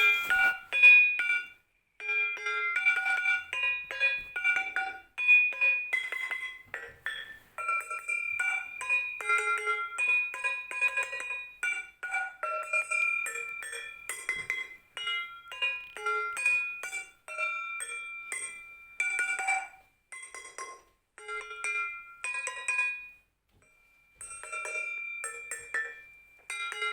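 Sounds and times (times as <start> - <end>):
tuned drum melodic notes: 0.0 - 0.7.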